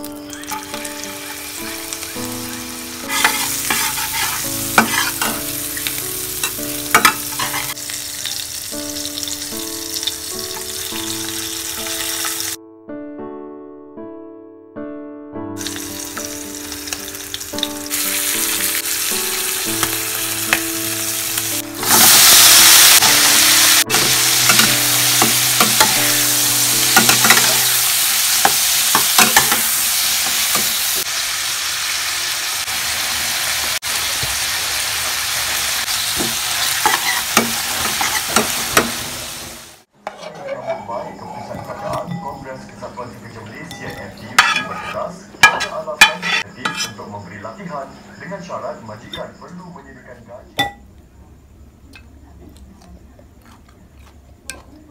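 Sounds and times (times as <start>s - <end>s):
vegetables sizzling in a pan: 0.0s - 12.6s, 15.6s - 40.3s
spatula scraping and tapping pan: 3.0s - 5.4s, 6.9s - 7.8s, 36.2s - 38.9s, 40.0s - 42.2s, 43.7s - 47.0s.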